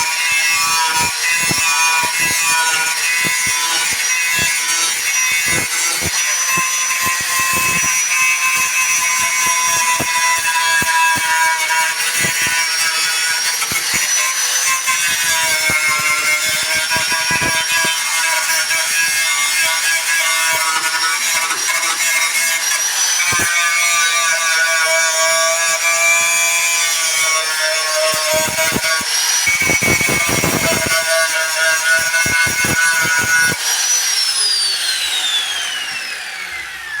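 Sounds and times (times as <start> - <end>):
power tool motor whining: 0.0 - 23.9, 24.6 - 37.0
tool scraping surface: 11.8 - 23.6.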